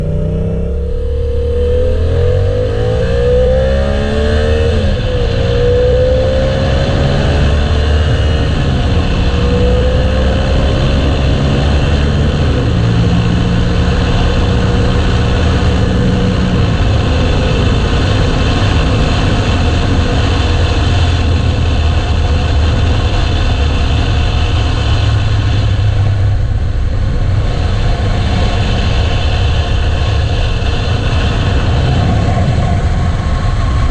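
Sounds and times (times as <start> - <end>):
motorcycle engine revving: 0.0 - 33.9
steady rush of noise: 0.0 - 33.9.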